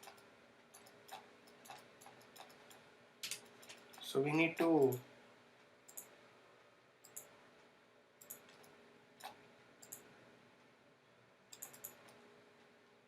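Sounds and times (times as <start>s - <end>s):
computer mouse clicking: 0.0s - 4.1s, 5.9s - 6.2s, 7.0s - 7.3s, 8.2s - 10.1s, 11.5s - 12.2s
faint room hum: 0.0s - 13.0s.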